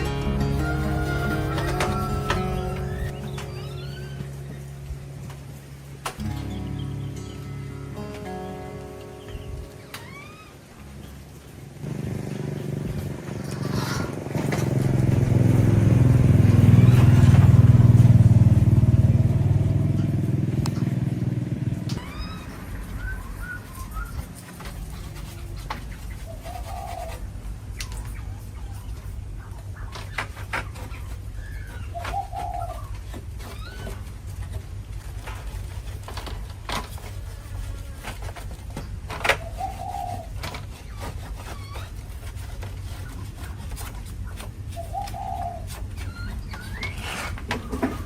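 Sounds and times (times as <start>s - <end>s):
bird chirps: 0.0s - 5.1s, 6.2s - 11.2s, 21.9s - 27.2s, 44.7s - 48.0s
vehicle engine passing by: 11.0s - 25.4s.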